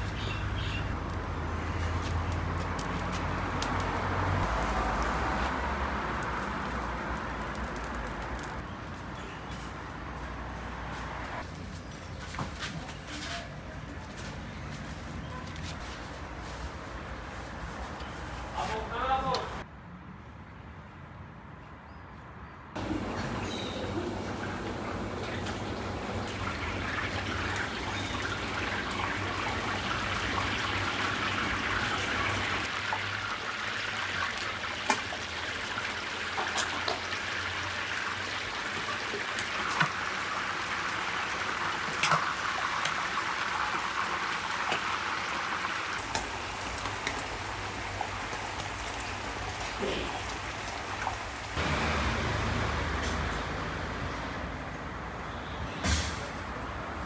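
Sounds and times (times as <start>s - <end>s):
street traffic rumble: 0.0s - 57.0s
oil popping and crackling: 0.7s - 10.1s, 22.9s - 52.2s
chicken sizzling in hot oil: 25.5s - 52.3s.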